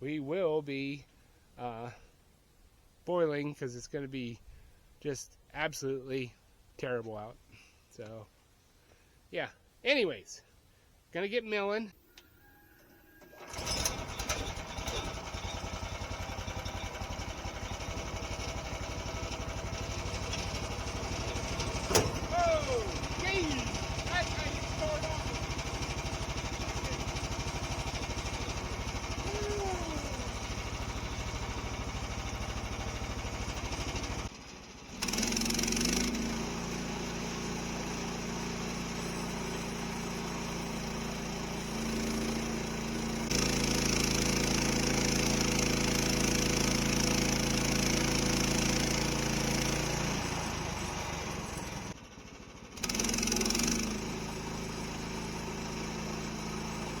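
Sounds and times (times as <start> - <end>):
gasoline engine running: 13.2 - 57.0
saw blade cutting log: 35.0 - 39.4, 52.8 - 54.1.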